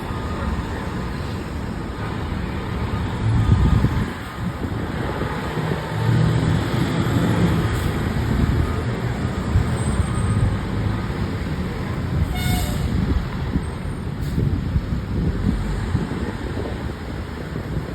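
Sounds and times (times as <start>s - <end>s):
fire engine rumbling: 0.0s - 17.9s
road traffic: 0.0s - 17.9s
horn toot: 12.2s - 13.0s.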